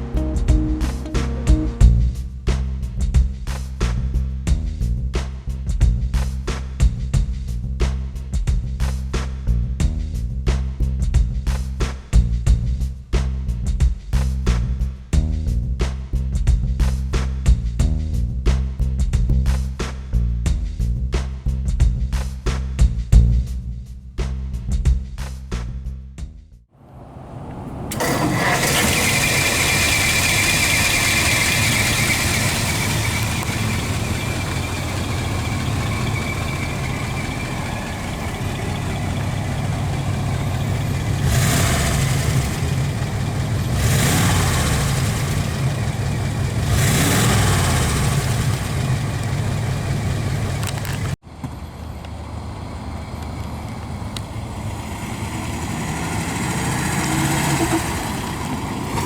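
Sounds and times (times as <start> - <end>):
car engine idling and revving: 0.0 - 8.0, 26.8 - 59.0.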